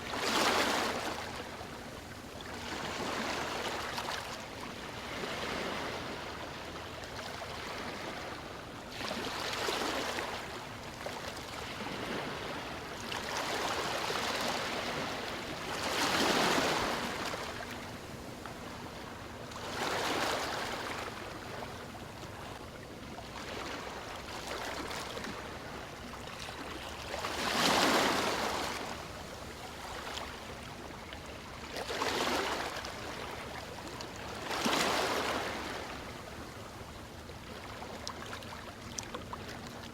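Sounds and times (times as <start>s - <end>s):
ocean waves breaking: 7.2s - 22.5s, 23.4s - 31.0s, 31.8s - 36.2s.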